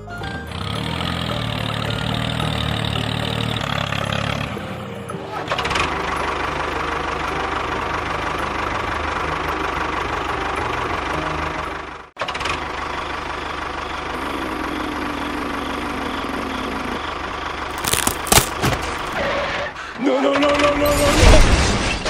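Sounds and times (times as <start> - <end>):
tractor engine running: 0.2 - 20.0
sharp cracks: 17.7 - 19.2.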